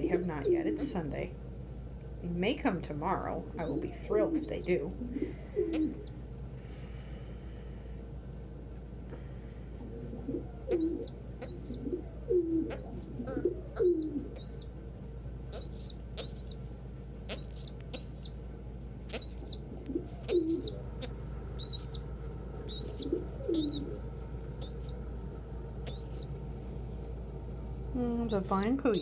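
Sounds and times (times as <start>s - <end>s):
pigeons cooing: 0.0s - 1.3s, 3.6s - 6.2s, 9.8s - 14.7s, 15.5s - 16.6s, 17.2s - 18.4s, 19.0s - 26.4s, 28.2s - 29.0s.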